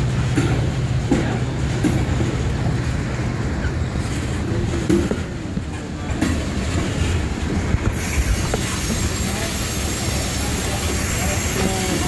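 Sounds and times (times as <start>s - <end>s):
train wheels rumbling: 0.0s - 12.0s
clunks over rail joints: 3.6s - 8.0s.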